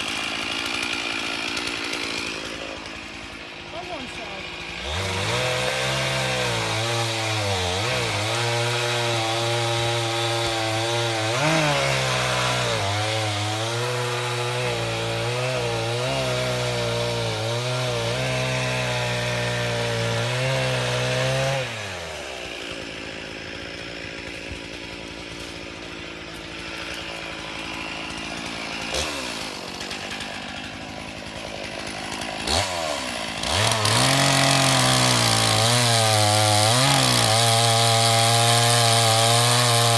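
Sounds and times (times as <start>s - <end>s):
small engine running: 0.0s - 10.0s.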